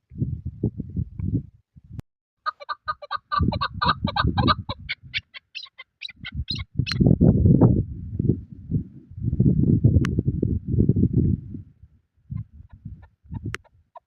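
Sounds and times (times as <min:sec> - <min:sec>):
wind buffeting microphone: 0:00.0 - 0:02.0, 0:02.8 - 0:05.3, 0:06.0 - 0:14.0
partridge clucking calls: 0:02.5 - 0:07.0.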